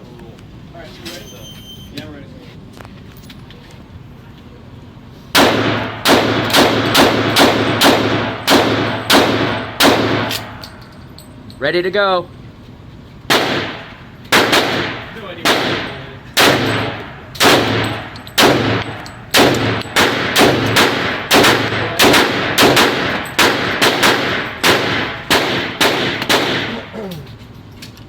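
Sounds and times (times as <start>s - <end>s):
pistol shots echoing: 5.4s - 10.7s, 13.3s - 26.9s.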